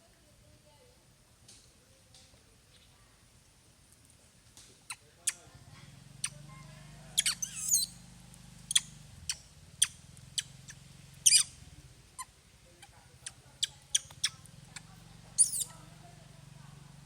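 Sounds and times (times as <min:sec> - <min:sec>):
baby monkey squeaking: 0:04.9 - 0:05.5, 0:07.2 - 0:08.0, 0:08.6 - 0:11.6, 0:12.2 - 0:15.9.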